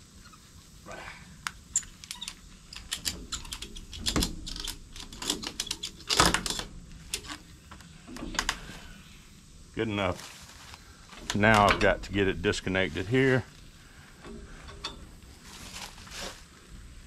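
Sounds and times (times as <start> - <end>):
ratchet strap clunks: 14.1 - 15.1.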